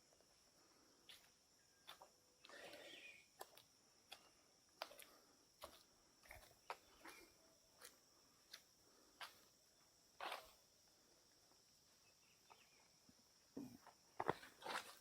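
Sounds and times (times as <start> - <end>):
high-pitched insect chorus: 0.0 - 15.0
footsteps on forest floor: 1.0 - 9.4, 13.8 - 15.0.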